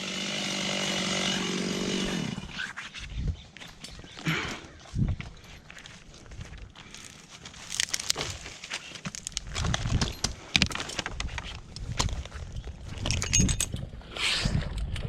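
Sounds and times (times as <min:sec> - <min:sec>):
branches and leaves rustling: 0:04.8 - 0:13.0.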